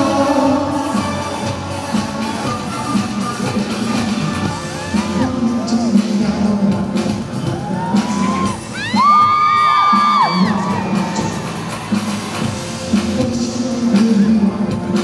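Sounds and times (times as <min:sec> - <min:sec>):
live pop music: 0:00.0 - 0:15.0
audience whooping and screaming: 0:07.4 - 0:12.7.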